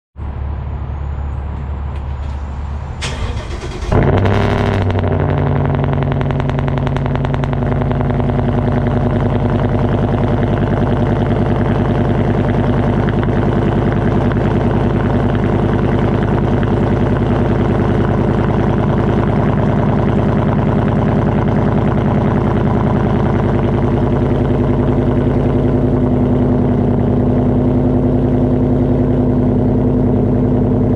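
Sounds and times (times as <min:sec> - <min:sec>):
car engine starting and idling: 0:01.0 - 0:30.9
starter motor cranking: 0:03.0 - 0:04.8.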